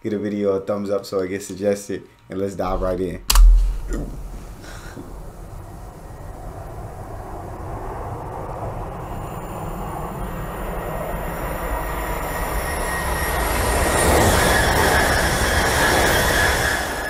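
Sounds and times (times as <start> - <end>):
high whine: 2.7 - 6.3.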